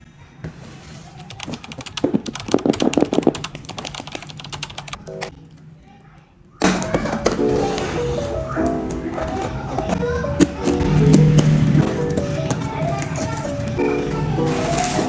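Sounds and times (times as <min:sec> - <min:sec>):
computer keyboard typing clicks: 0:01.2 - 0:05.3.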